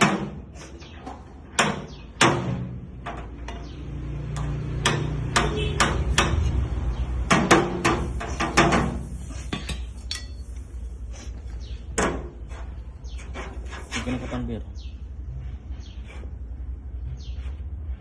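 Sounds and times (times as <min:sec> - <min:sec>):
hammer tapping on sheet metal: 0:01.5 - 0:06.6, 0:07.2 - 0:10.3.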